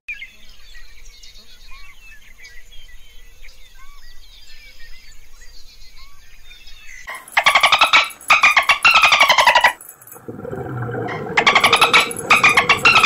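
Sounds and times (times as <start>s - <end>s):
many birds chirping: 0.2s - 9.8s, 11.2s - 13.0s
low rising-and-falling bird call: 10.6s - 13.0s.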